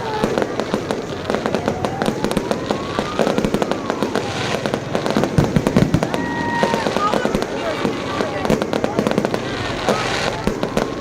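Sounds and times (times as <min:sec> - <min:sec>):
firework bangs and crackling: 0:00.0 - 0:11.0
whistling rockets: 0:00.0 - 0:11.0.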